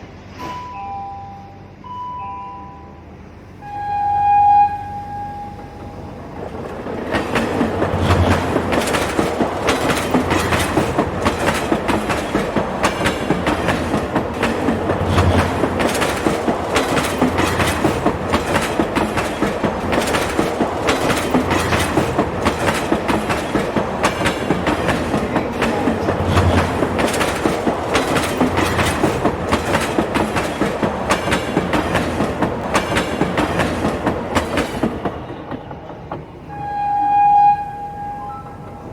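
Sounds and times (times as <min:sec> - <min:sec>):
train rumble: 0:00.0 - 0:38.9
train wheels clicking over rail joints: 0:05.8 - 0:36.6.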